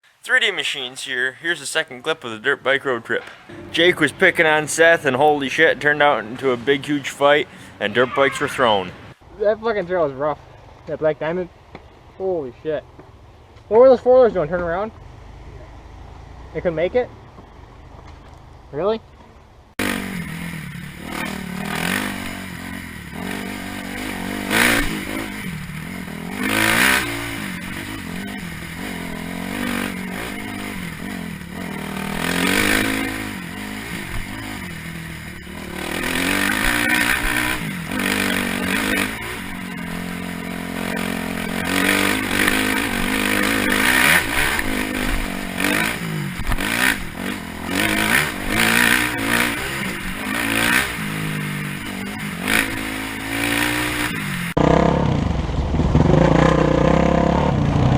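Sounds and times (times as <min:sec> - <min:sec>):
dirt bike engine revving: 0:02.2 - 0:09.2, 0:19.8 - 0:57.9.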